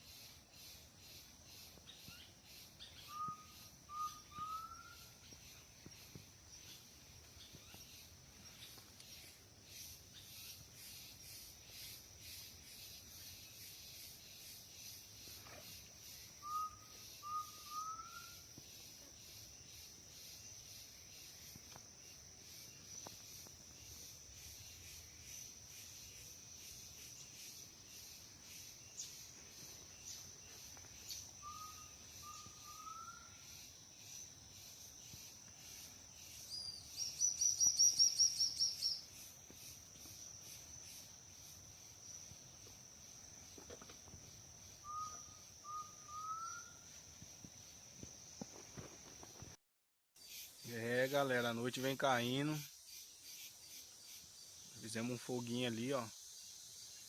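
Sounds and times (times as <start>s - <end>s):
high-pitched insect drone: 0.0s - 49.1s.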